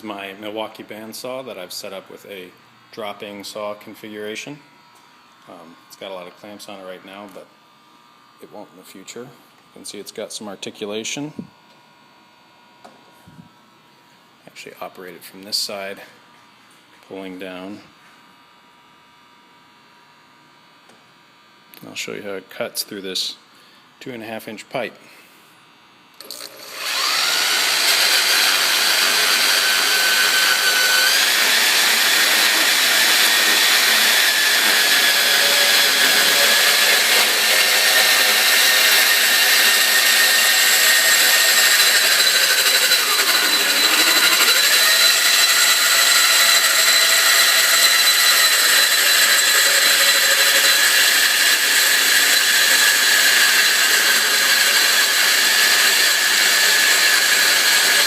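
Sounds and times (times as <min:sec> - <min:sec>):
band saw cutting through pipe: 0:26.2 - 0:58.0.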